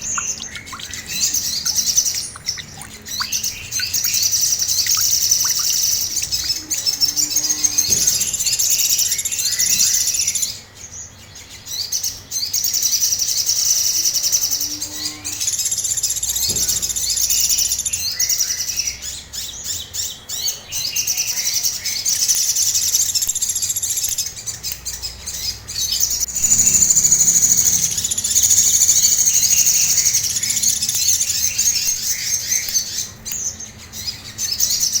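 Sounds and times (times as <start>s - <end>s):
bird rapid chattering song: 0.0s - 8.3s.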